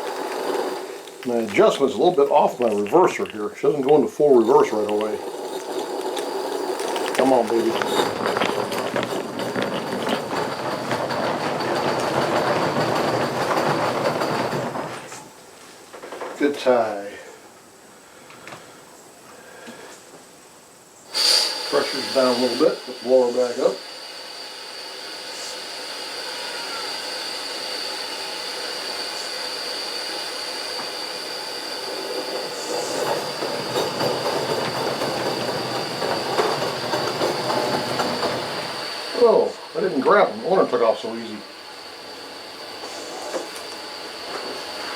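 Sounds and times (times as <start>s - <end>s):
locomotive rumbling and clanking: 0.0s - 15.4s, 30.6s - 44.9s
train wheels clicking over rails: 0.0s - 16.7s, 21.1s - 44.9s
steam locomotive blower hissing: 0.0s - 44.9s.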